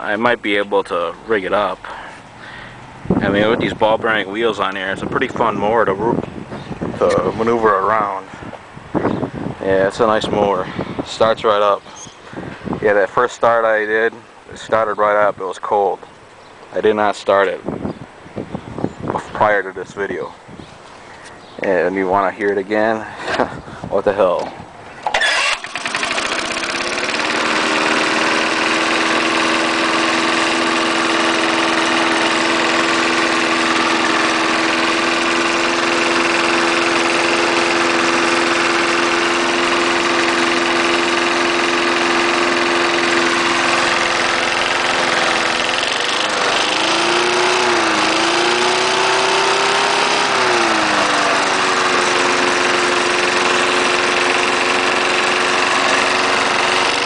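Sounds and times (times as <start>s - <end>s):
lawnmower engine running: 25.0s - 57.0s.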